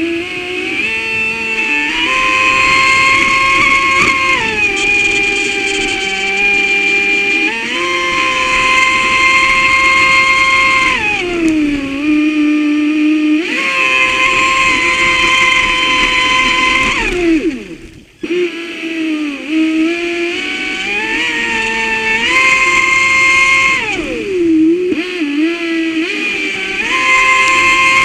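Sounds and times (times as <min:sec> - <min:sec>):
electric motor whining: 0:00.0 - 0:28.0.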